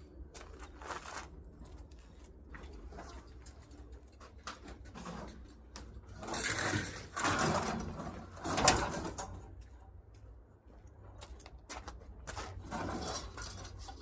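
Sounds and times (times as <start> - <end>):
scrap being dragged and scraping: 0.4 - 4.0, 4.6 - 9.4, 12.2 - 14.0.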